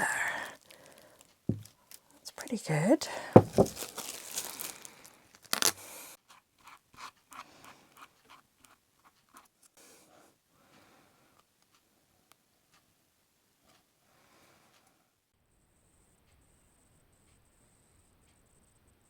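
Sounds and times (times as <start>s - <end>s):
rustling and scraping: 3.4s - 4.8s.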